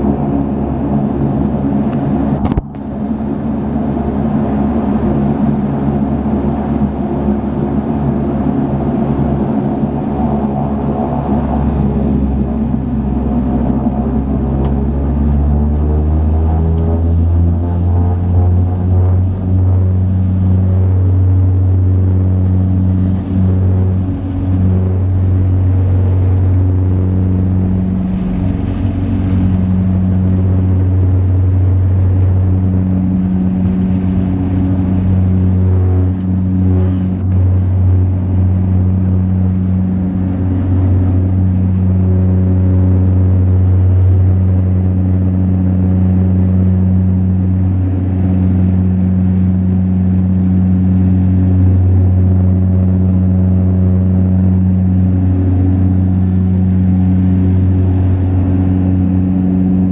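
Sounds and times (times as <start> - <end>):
propeller drone in cabin: 0.0 - 59.9
wavering higher hum: 0.0 - 59.9.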